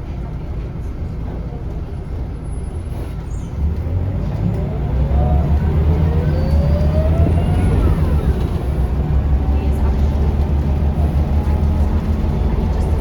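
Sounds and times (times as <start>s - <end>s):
bus diesel engine rumbling: 0.0s - 13.0s
rising whine: 4.6s - 8.9s.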